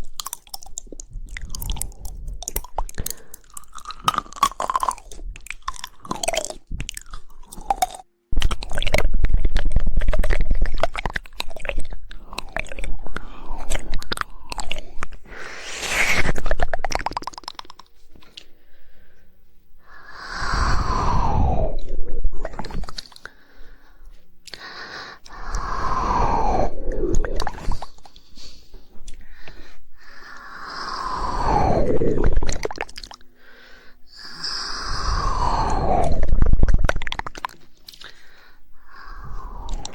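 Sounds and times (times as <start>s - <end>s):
fast run of tongue clicks: 0.0s - 15.2s, 15.8s - 17.9s
wet mouth clicks: 0.0s - 18.6s, 19.8s - 23.4s, 24.4s - 33.2s, 34.2s - 39.9s
sounds sliding down in pitch: 15.3s - 16.6s.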